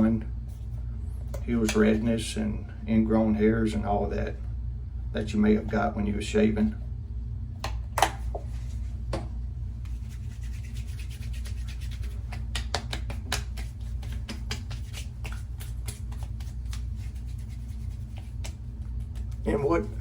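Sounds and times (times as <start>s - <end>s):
steady low hum: 0.0s - 20.0s
hands slapping and rubbing skin: 0.5s - 2.0s, 7.6s - 20.0s.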